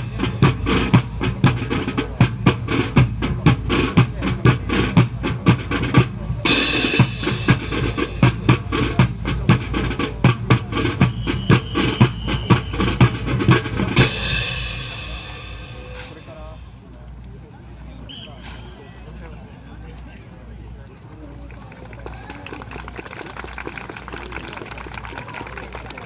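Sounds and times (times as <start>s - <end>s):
drums beating a driving cadence: 0.0s - 19.0s
cymbal crash: 14.0s - 16.7s.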